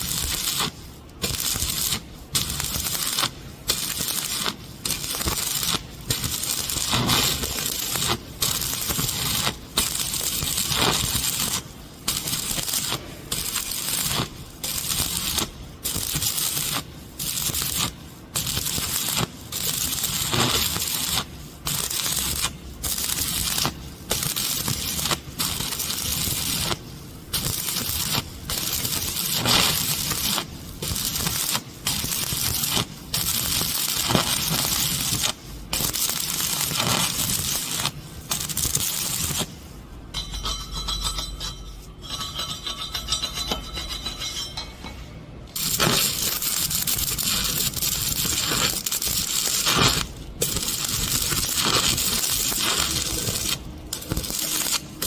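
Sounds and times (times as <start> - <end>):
welding arc crackling and sizzling: 0.0 - 55.0.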